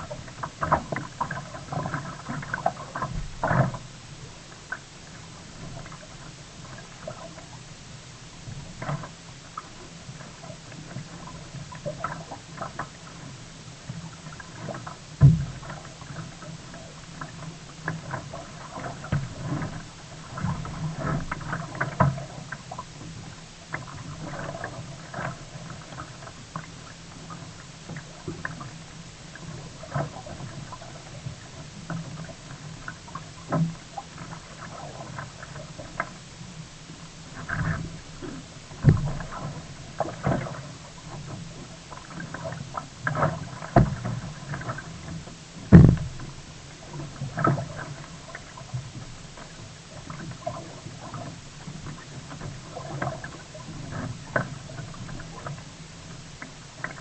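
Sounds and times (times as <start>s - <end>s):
paddle splashes: 0.0s - 57.0s
kayak knocks and thump: 14.6s - 16.2s, 37.3s - 55.6s.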